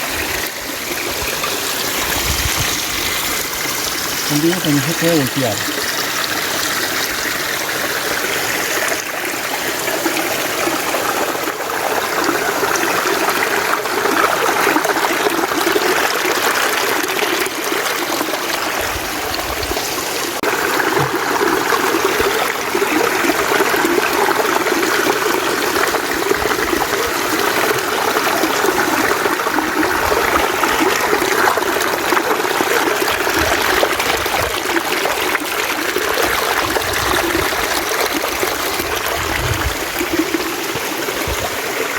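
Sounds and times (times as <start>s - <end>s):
stream running over rocks: 0.0s - 41.9s.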